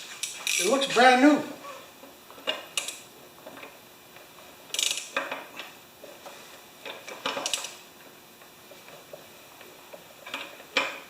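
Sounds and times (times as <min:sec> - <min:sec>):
socket ratchet clicking: 0:04.7 - 0:05.2.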